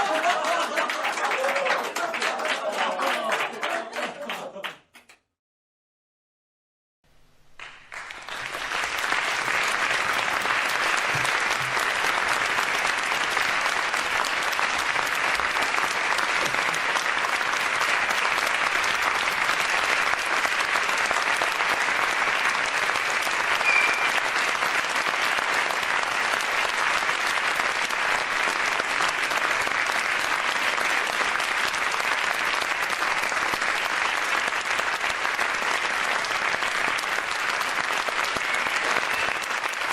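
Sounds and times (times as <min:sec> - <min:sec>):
audience applauding: 0:00.0 - 0:05.1, 0:07.5 - 0:39.9.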